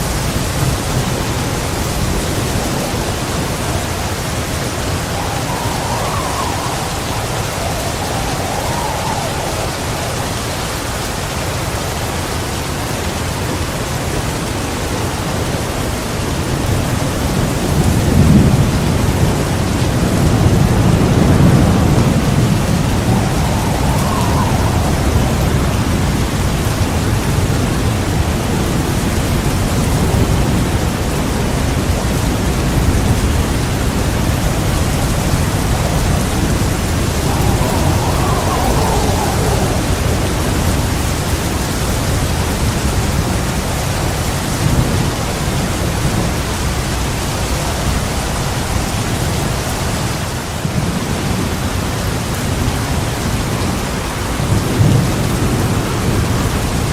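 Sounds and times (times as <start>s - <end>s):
low rumble of thunder: 0.0s - 11.7s, 14.8s - 56.9s
heavy rain pouring: 0.0s - 56.9s.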